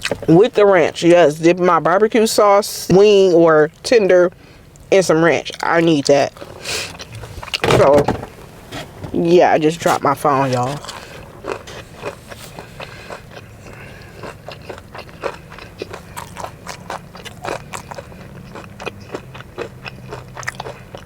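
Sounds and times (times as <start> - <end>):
chewing crispy fried chicken: 5.4 - 7.6, 10.1 - 21.0.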